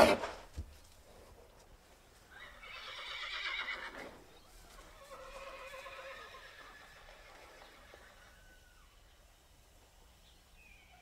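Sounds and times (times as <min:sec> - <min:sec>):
horse whinnying: 0:02.4 - 0:04.2, 0:05.0 - 0:08.8.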